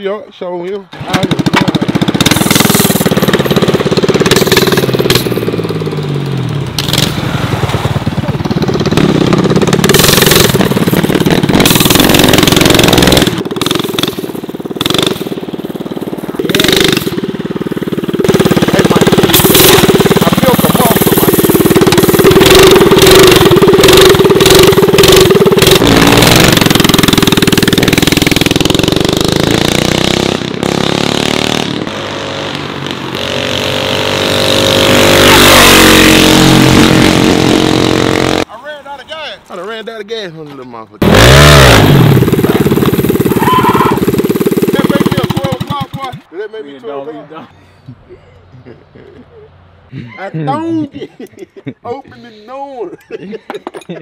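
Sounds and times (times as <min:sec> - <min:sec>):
minibike engine revving: 0:01.0 - 0:38.5, 0:41.0 - 0:46.3.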